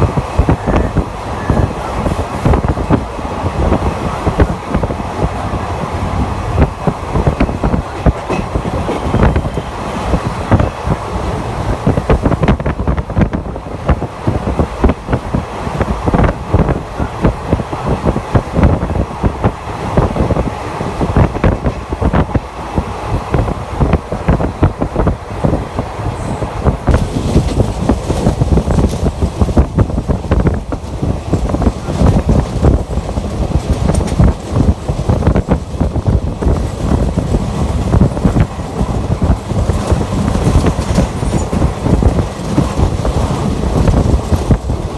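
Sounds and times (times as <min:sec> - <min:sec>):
train wheels rumbling on track: 0:00.0 - 0:44.9
knocks and rattles: 0:26.8 - 0:44.9.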